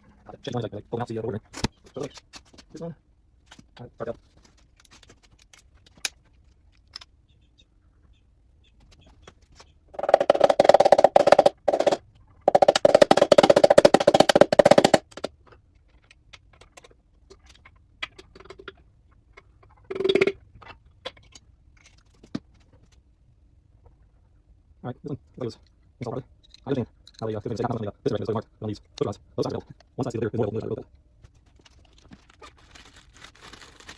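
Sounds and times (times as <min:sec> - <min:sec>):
impact wrench hammering: 0:10.0 - 0:15.3.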